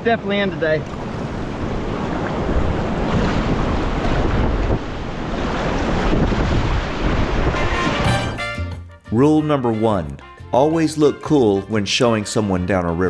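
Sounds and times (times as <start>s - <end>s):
wind buffeting microphone: 0.9s - 8.1s
whitewater rushing: 5.1s - 8.6s.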